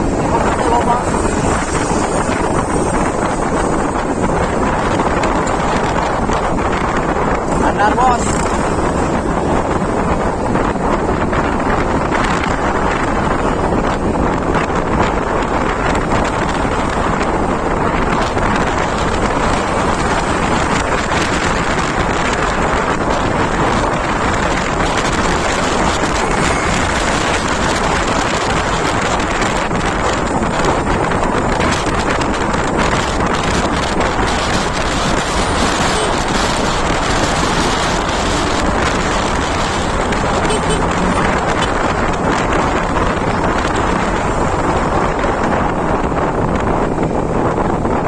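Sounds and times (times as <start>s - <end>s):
road noise: 0.0s - 48.0s
wind buffeting microphone: 0.0s - 48.0s.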